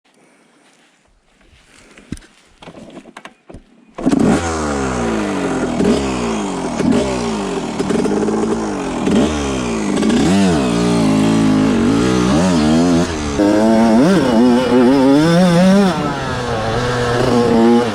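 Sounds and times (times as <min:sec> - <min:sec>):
two-stroke engine revving: 0:04.0 - 0:17.9.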